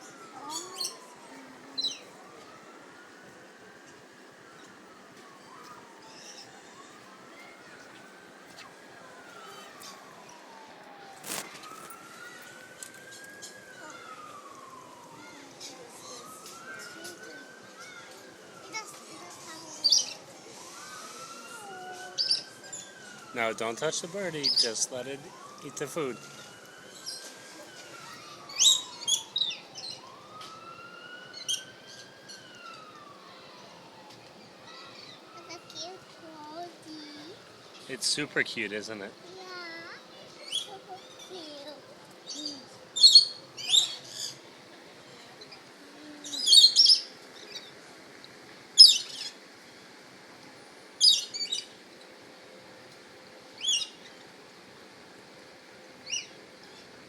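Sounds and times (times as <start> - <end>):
faint siren wailing: 0.0 - 57.0
birds chirping: 0.2 - 2.7, 24.3 - 26.2, 42.2 - 44.5, 51.0 - 51.8.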